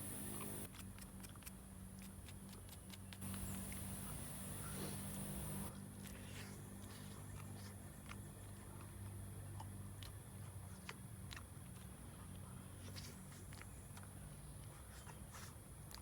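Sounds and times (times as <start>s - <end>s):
insects chirring: 0.0s - 0.7s.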